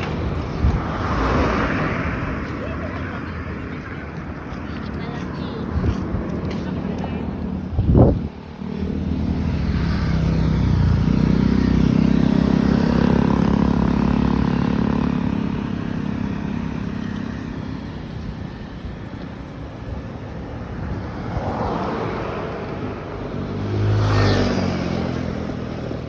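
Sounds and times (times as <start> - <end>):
vehicle passing close by: 0.0 - 4.9, 20.6 - 26.0
steady traffic noise: 0.0 - 26.0.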